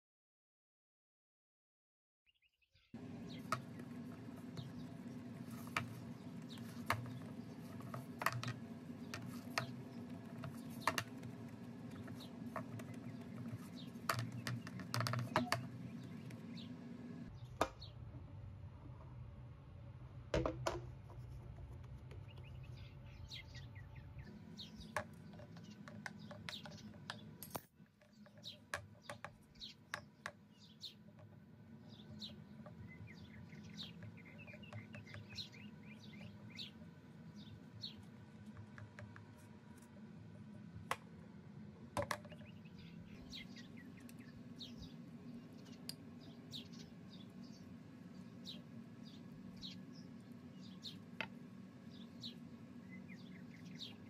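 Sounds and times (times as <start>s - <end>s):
small bird chirping: 2.4s - 18.0s, 21.2s - 27.4s, 28.0s - 39.2s, 42.2s - 54.0s
steady low hum: 3.0s - 28.2s.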